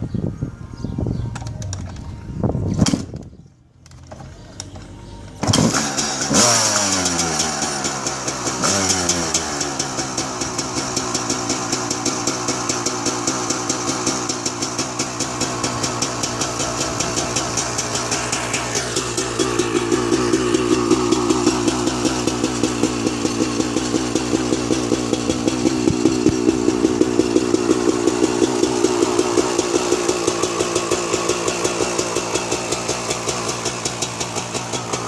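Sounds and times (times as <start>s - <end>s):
dirt bike engine revving and idling: 4.4s - 35.0s.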